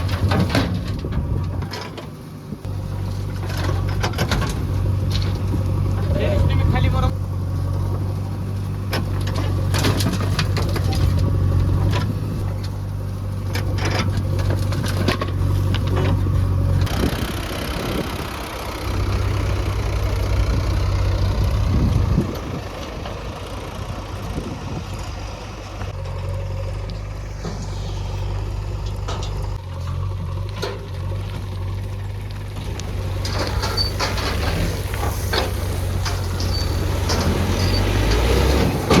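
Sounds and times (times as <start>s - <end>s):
heavy diesel engine running: 0.0s - 39.0s
metallic clanks and knocks: 3.2s - 6.1s, 28.8s - 31.2s.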